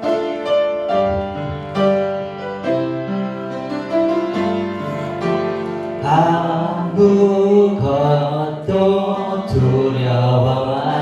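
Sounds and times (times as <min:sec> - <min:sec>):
keyboard playing held chords: 0:00.0 - 0:11.0
people singing: 0:05.9 - 0:11.0.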